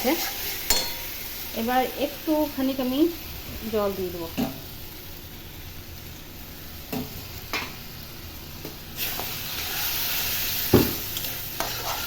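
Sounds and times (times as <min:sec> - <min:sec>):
loud sizzling hiss: 0:00.0 - 0:12.0
spices frying in a pan: 0:00.0 - 0:12.0
spatula scraping and knocking pan: 0:10.7 - 0:12.0.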